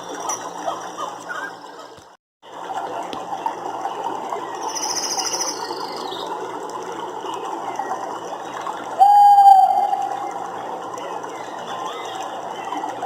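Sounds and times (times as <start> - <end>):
chorus of calling animals: 7.8 - 13.0.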